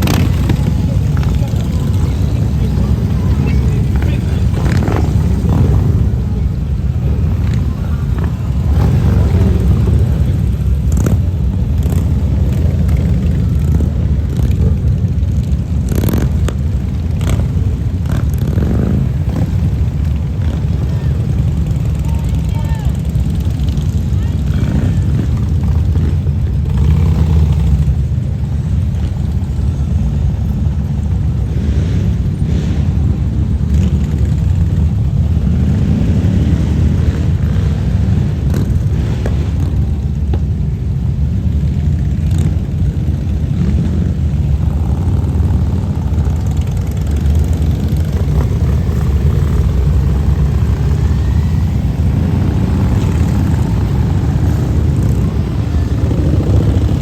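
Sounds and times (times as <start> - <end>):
motorcycle engines rumbling: 0.0 - 57.0
motorcycle revving: 0.0 - 57.0.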